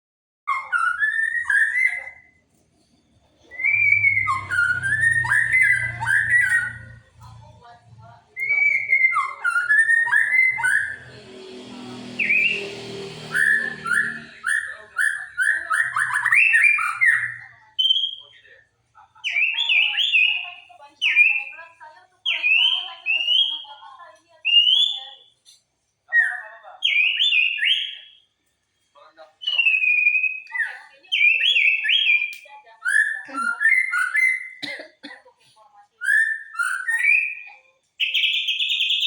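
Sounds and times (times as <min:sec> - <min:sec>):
bird singing whistled phrases: 0:00.5 - 0:02.4, 0:03.5 - 0:07.0, 0:08.4 - 0:11.0, 0:12.2 - 0:12.7, 0:13.3 - 0:18.4, 0:19.3 - 0:21.6, 0:22.3 - 0:23.8, 0:24.4 - 0:25.3, 0:26.1 - 0:28.2, 0:29.4 - 0:34.6, 0:36.0 - 0:39.0.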